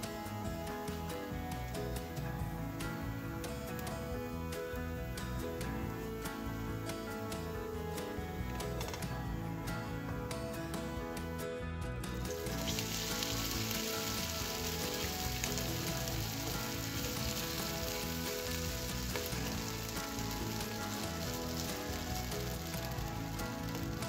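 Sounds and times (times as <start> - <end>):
beans sizzling in hot oil: 12.2 - 24.0.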